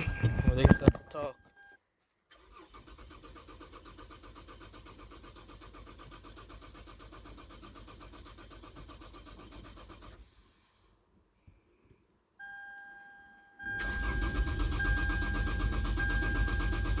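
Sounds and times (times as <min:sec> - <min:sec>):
car engine cranking: 0:00.0 - 0:01.6, 0:02.3 - 0:10.9, 0:13.7 - 0:17.0.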